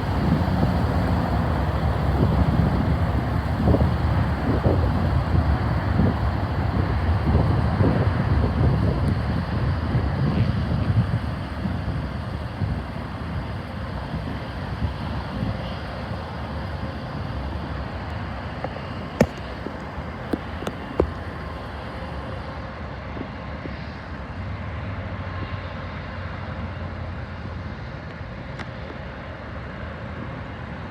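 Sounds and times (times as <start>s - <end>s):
wind on microphone: 0.0s - 16.2s
outdoor rumble: 0.0s - 22.4s.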